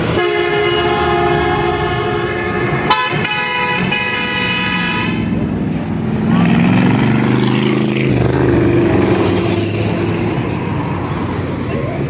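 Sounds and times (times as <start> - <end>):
car horn blast: 0.1 - 5.3.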